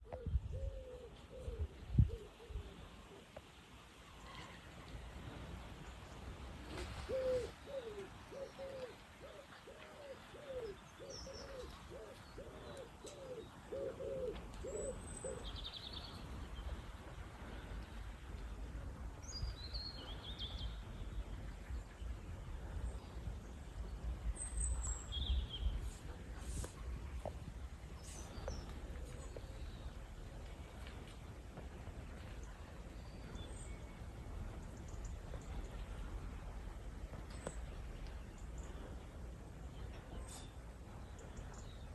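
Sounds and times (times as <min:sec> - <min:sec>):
bird hooting: 0:07.1 - 0:15.4
low background rumble: 0:14.4 - 0:41.9.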